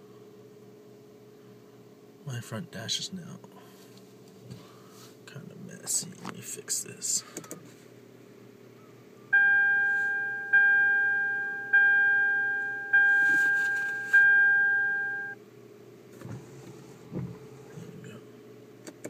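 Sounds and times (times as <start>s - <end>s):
low cabin hum: 8.6s - 19.0s
car warning chime dinging: 9.4s - 15.4s.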